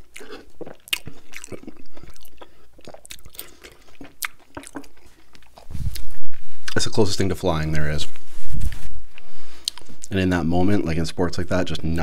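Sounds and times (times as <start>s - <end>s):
close chewing with mouth clicks: 0.0s - 6.8s, 9.1s - 10.1s.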